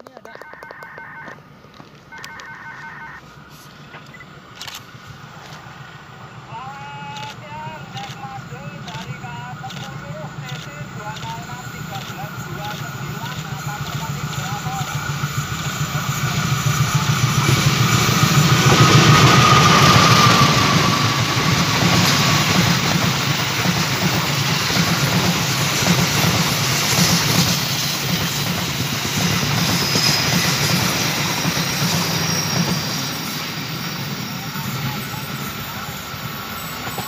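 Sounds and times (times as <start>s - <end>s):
high whine: 0.6s - 37.0s
locomotive engine passing: 1.4s - 37.0s
train wheels clattering on rails: 8.8s - 37.0s.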